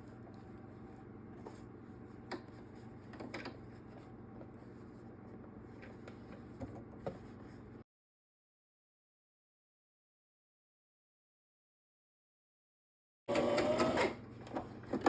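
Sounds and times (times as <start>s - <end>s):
low room hum: 0.0s - 7.8s.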